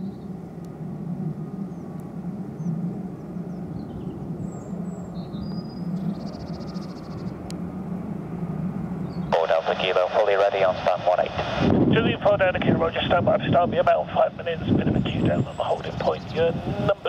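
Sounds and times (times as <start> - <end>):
distant jet engines rumbling: 0.0 - 17.0
small birds chirping: 2.6 - 7.4, 9.0 - 9.4.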